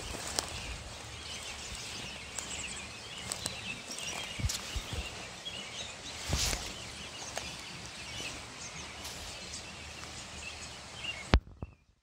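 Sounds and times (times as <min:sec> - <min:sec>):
small birds chirping: 0:00.0 - 0:12.0
short rustle: 0:06.1 - 0:10.3.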